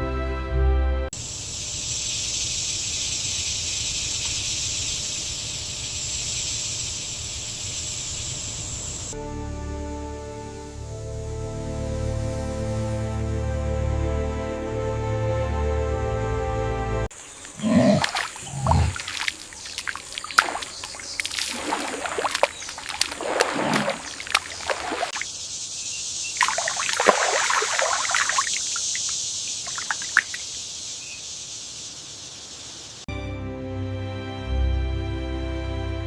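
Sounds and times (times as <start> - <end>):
steady high hiss: 1.2 - 9.2, 24.5 - 33.0
water splashing and sloshing: 17.1 - 25.3, 26.4 - 30.6
water trickling: 17.2 - 25.2, 26.4 - 30.7.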